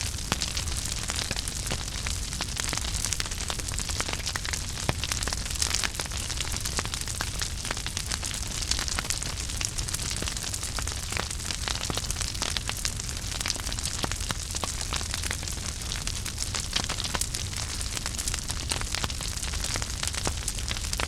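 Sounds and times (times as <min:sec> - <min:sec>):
burning wood crackling and popping: 0:00.0 - 0:21.0
fire flames rumbling and hissing: 0:00.0 - 0:21.0.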